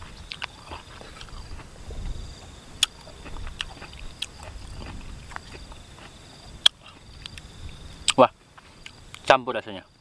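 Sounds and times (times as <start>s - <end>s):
person chewing: 0.0s - 9.2s
wet mouth clicks and smacks: 0.3s - 1.4s, 2.8s - 5.8s, 6.6s - 7.5s.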